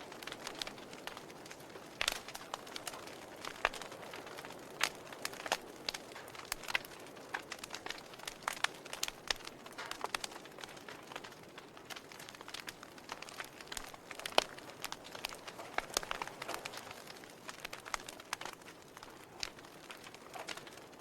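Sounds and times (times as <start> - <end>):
soft steady hiss: 0.0 - 21.0
wood fire crackling and popping: 0.0 - 21.0.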